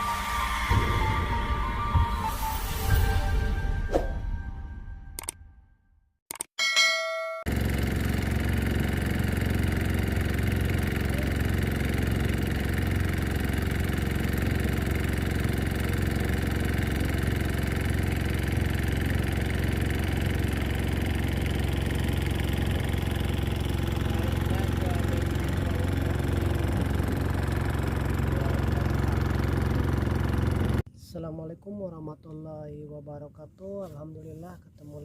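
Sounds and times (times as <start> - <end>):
small engine running: 7.5 - 30.8.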